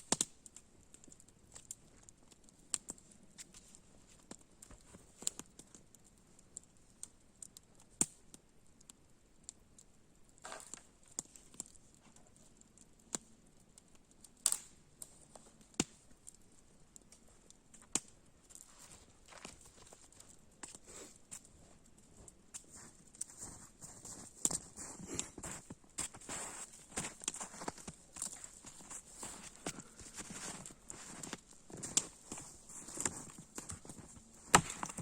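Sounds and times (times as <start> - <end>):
soft shuffling: 20.9 - 35.0.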